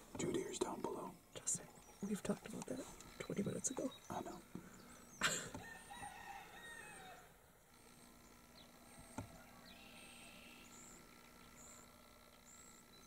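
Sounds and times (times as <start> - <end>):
distant small birds chirping: 0.0 - 13.0.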